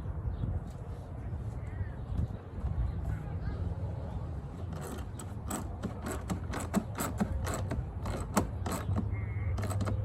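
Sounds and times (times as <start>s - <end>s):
ratchet wrench clicking: 4.8s - 10.0s.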